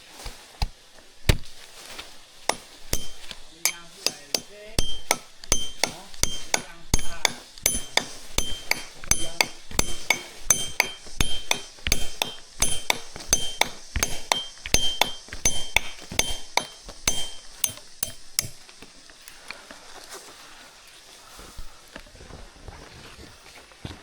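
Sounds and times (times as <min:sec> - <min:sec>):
tool striking metal: 0:00.2 - 0:18.9.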